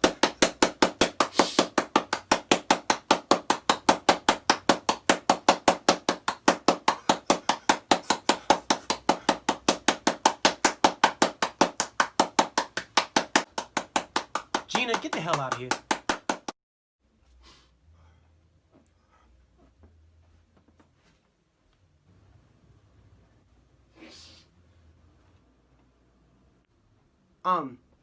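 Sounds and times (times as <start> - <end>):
rapid sharp knocking: 0.0 - 16.6.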